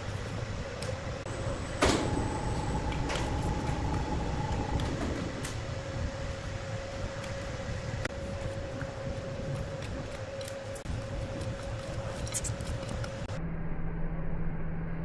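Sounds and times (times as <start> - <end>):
sawmill saw humming: 1.3 - 11.6.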